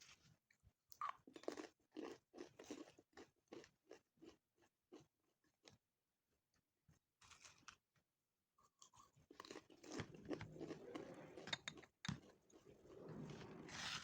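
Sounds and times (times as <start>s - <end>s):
chewing crunchy food: 0.9s - 5.8s, 8.6s - 11.0s.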